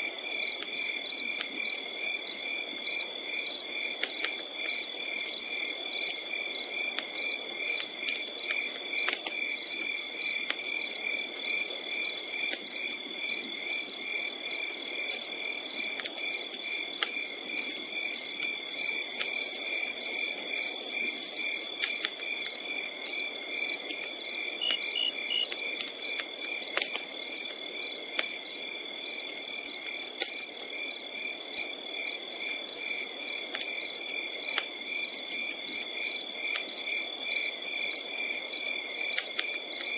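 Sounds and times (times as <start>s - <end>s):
campfire crackling and popping: 0.0s - 39.9s
crickets chirping: 0.0s - 39.9s
high insect buzz: 24.6s - 25.5s.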